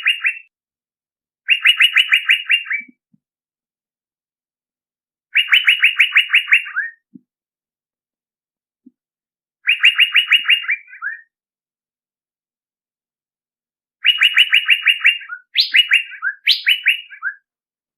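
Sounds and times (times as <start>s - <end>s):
bird call with rapid repeated notes: 0.0s - 0.5s, 1.4s - 3.0s, 5.3s - 7.1s, 9.6s - 11.4s, 14.0s - 17.5s.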